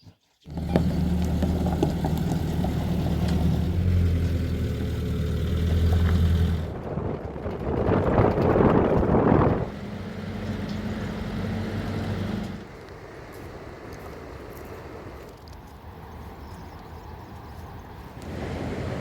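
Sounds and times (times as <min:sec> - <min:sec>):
rough loud engine noise: 0:00.4 - 0:13.2, 0:18.2 - 0:19.0
engine running: 0:00.4 - 0:15.3, 0:18.2 - 0:19.0.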